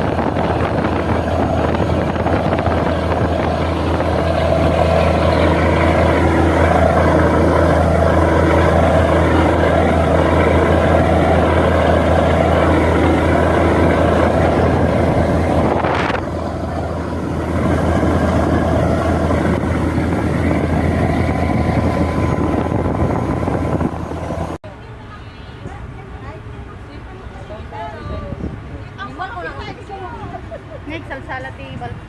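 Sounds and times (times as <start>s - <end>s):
water noise: 0.0s - 24.6s
motorboat engine drone: 0.0s - 31.0s
wind: 0.0s - 32.0s.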